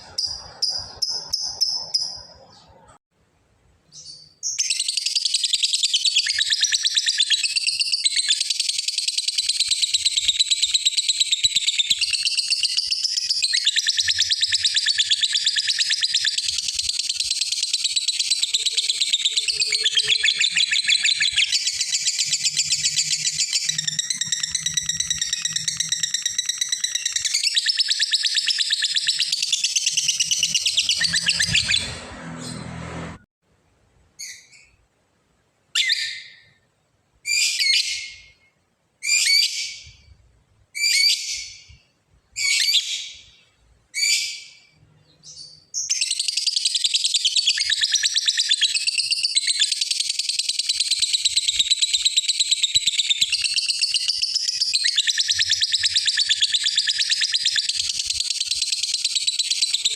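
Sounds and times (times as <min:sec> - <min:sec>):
lovebird rattling trill: 0:12.0 - 0:31.8.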